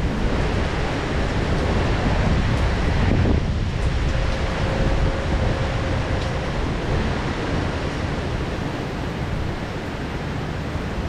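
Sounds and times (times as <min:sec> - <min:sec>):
heavy rain downpour: 0:00.0 - 0:11.0.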